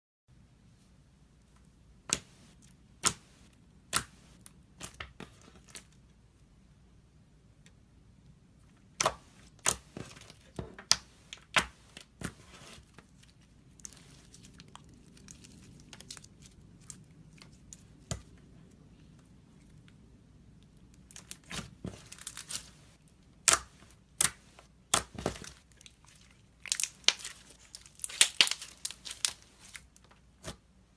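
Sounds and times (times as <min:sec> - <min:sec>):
slime with stones crackling: 0:23.4 - 0:30.6.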